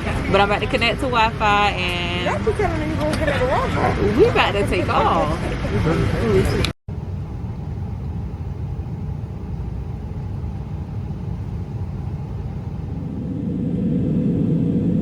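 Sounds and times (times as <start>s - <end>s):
airliner engine rumble in cabin: 6.2s - 15.0s.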